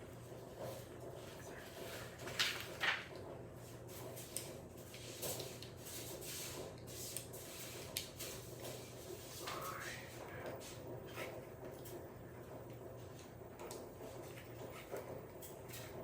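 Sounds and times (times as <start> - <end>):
steady low hum: 8.7 - 15.5.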